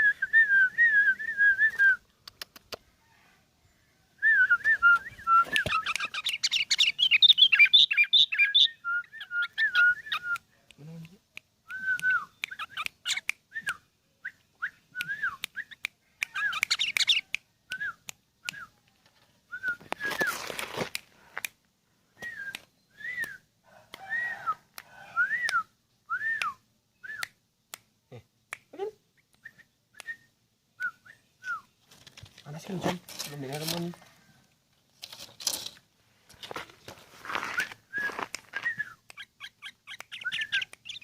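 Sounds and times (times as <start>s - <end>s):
sharp clicks: 2.2s - 2.8s
bird singing fluted whistles: 4.2s - 10.4s, 11.7s - 12.8s, 13.5s - 18.7s, 22.2s - 23.4s, 24.0s - 27.3s, 29.4s - 31.7s, 37.5s - 41.0s.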